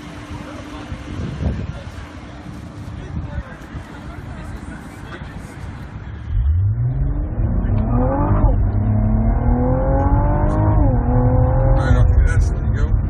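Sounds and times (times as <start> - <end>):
car engine accelerating hard: 6.1 - 13.0.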